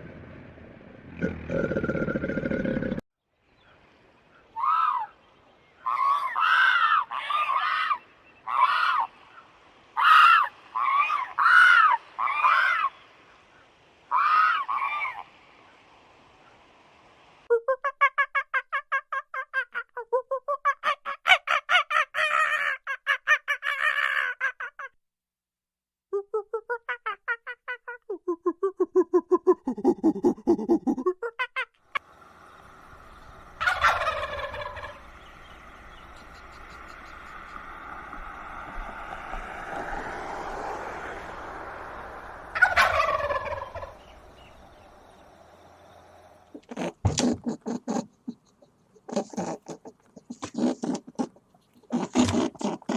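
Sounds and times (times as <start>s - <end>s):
harsh animal cries: 4.6s - 5.1s, 5.8s - 9.1s, 10.0s - 12.9s, 14.1s - 15.2s
turkeys gobbling: 14.1s - 15.2s, 33.0s - 39.4s, 41.9s - 45.8s.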